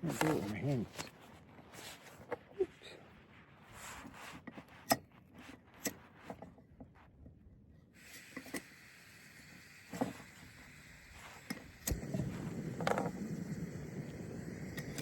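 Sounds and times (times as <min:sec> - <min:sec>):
gas hissing from stove: 0:08.0 - 0:15.0.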